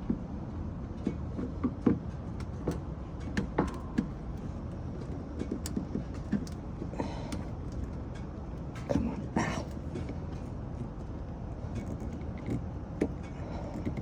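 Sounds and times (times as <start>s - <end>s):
screwdriver clicking on plastic fasteners: 2.7s - 7.9s, 10.8s - 14.0s.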